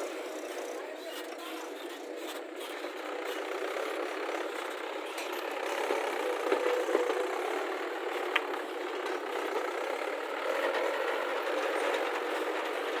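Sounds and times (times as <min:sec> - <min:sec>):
heavy diesel machinery running: 0:02.9 - 0:13.0.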